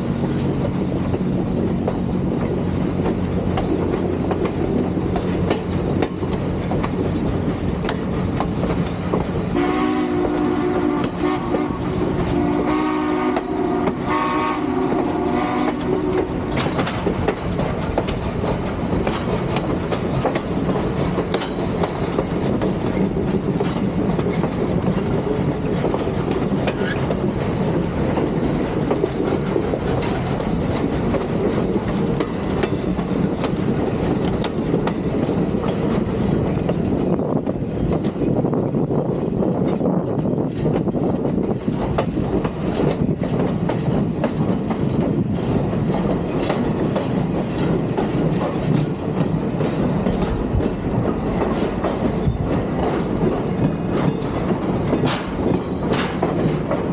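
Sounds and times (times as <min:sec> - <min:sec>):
train rumbling on rails: 0:00.0 - 0:56.9
steam train whistle: 0:09.5 - 0:16.4.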